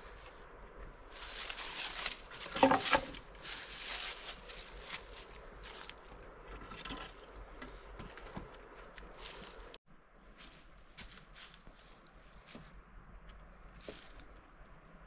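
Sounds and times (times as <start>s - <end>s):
rustling and crunching: 0.0s - 9.8s.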